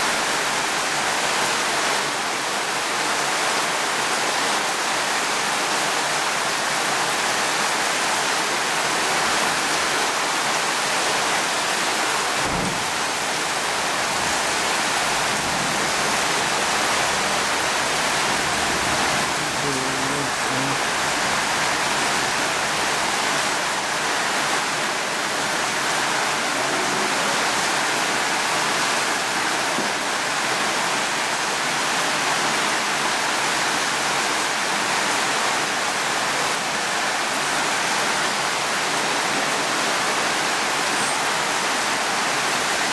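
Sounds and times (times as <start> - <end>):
heavy rainfall: 0.0 - 42.9
low thud: 12.4 - 15.5.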